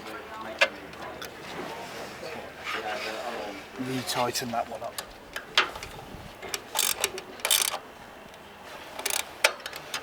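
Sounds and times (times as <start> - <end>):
ratchet spanner clicking: 6.6 - 7.8, 9.0 - 9.8.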